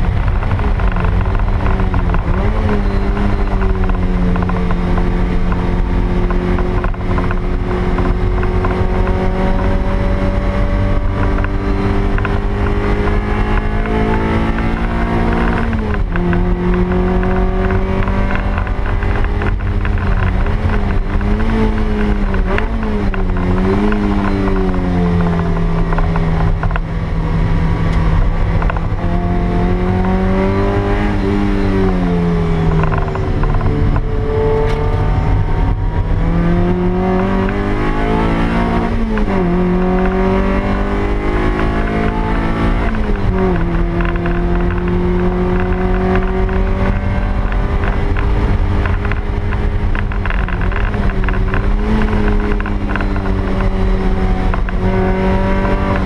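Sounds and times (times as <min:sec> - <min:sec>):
car engine revving: 0:00.0 - 0:56.0
road and wind noise: 0:00.0 - 0:56.0.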